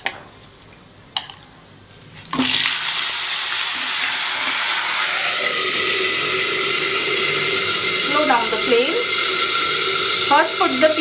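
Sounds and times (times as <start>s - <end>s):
chicken sizzling in hot oil: 2.3s - 11.0s.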